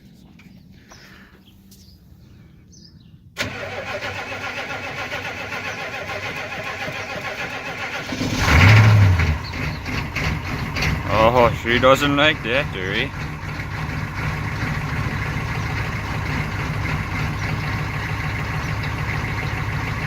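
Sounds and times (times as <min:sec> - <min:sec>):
starter motor cranking: 0:03.4 - 0:11.3, 0:12.4 - 0:20.0
diesel engine running: 0:03.4 - 0:20.0.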